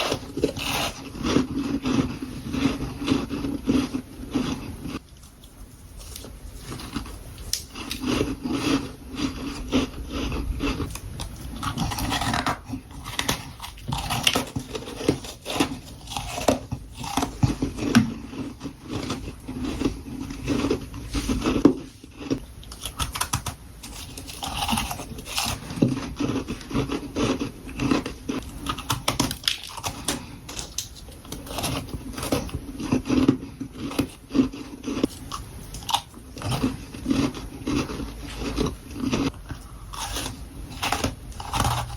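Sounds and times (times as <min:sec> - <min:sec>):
chewing crunchy frost: 0:00.0 - 0:41.9.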